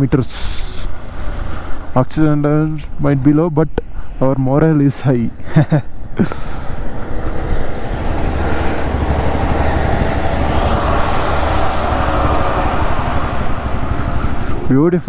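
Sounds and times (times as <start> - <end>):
wind and road noise: 0.0 - 15.0
low rumble: 6.0 - 14.8
motorcycle engine running: 6.6 - 14.7.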